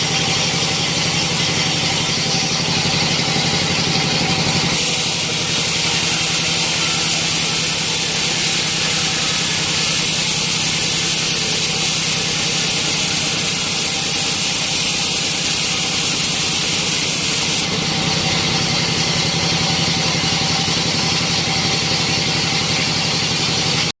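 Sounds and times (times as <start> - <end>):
sawmill engine drone: 0.0 - 23.9
loud high hiss: 4.7 - 17.8.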